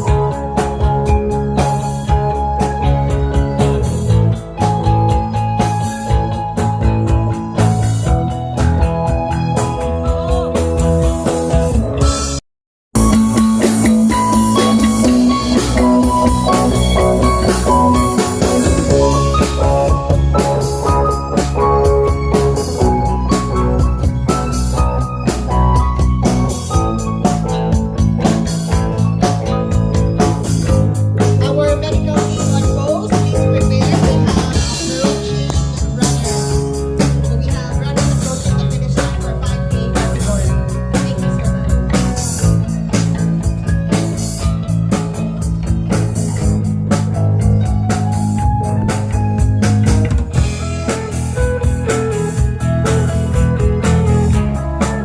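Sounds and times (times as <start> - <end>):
band music with guitar and drums: 0.0 - 55.0
bass notes: 0.0 - 55.0.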